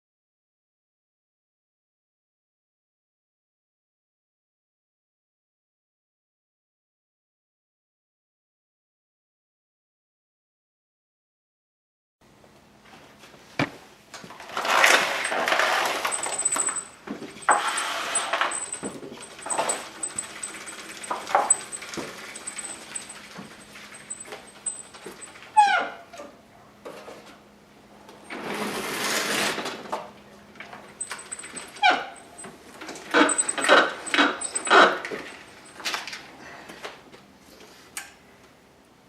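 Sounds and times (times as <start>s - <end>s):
rustling and shuffling: 12.8s - 25.5s, 30.6s - 38.0s
dog whining: 15.2s - 26.4s, 31.0s - 35.8s.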